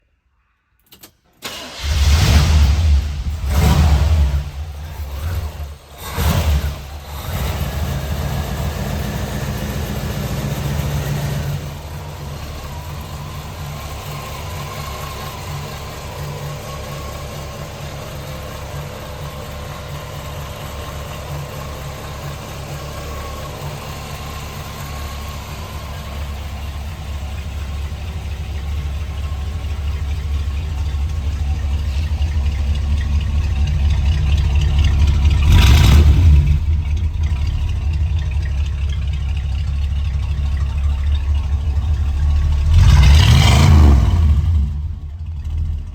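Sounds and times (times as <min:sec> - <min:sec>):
car engine idling: 0:01.4 - 0:45.9
engine revving: 0:01.5 - 0:26.4, 0:29.4 - 0:38.1, 0:41.5 - 0:45.9.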